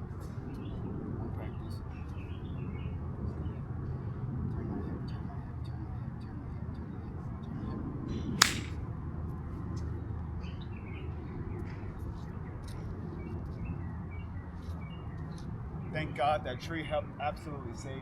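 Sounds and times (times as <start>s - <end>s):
golf club striking ball: 8.4s - 8.8s
golf club swing swish: 8.4s - 8.8s.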